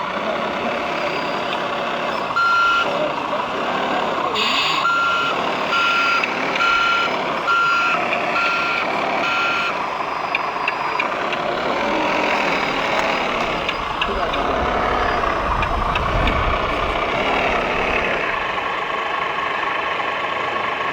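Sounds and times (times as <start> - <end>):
background hubbub: 0.0 - 20.9
reversing alarm beeping: 0.9 - 3.1, 4.3 - 18.7.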